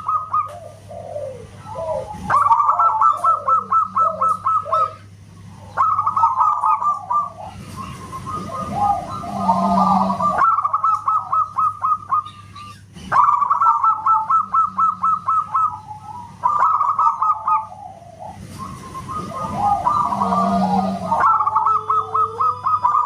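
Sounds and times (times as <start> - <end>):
doves calling in whistle-like notes: 0.0 - 23.0.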